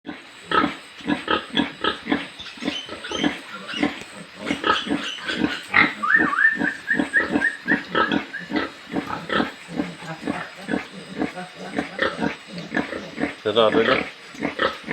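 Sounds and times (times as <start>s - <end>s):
pigs grunting: 0.1s - 14.9s
high wavering animal call: 2.4s - 12.0s.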